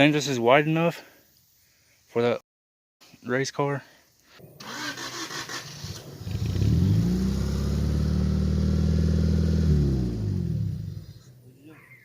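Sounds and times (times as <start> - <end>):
car engine revving: 4.6 - 11.3.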